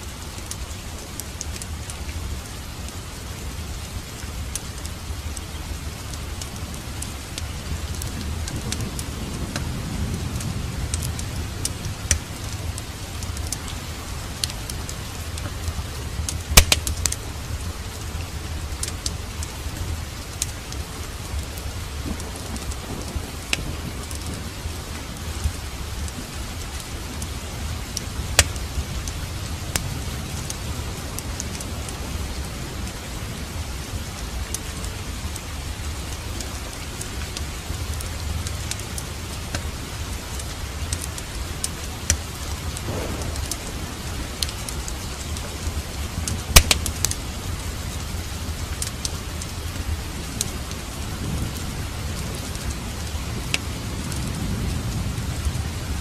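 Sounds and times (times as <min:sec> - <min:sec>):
steady rain: 0:00.0 - 0:56.0
wood fire crackling and popping: 0:00.2 - 0:02.2, 0:10.4 - 0:17.3, 0:18.2 - 0:19.6, 0:20.2 - 0:30.6, 0:40.2 - 0:47.3
low rumble: 0:42.8 - 0:45.2.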